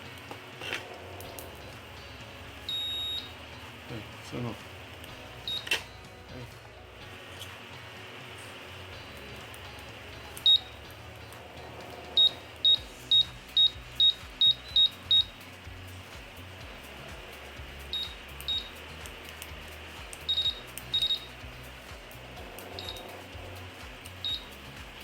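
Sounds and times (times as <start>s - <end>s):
short high beeps: 2.7s - 3.3s.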